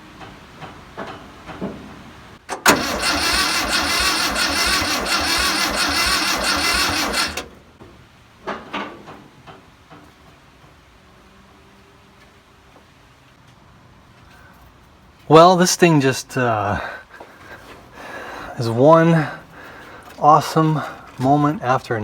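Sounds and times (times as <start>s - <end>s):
starter cranking engine: 2.5s - 7.5s.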